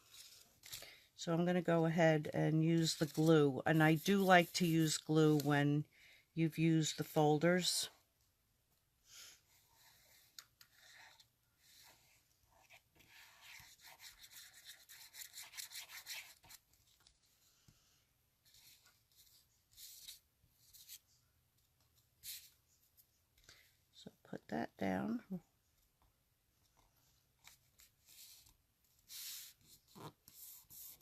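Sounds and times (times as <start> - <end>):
paper rubbing and scratching: 11.8 - 16.7, 27.4 - 31.0.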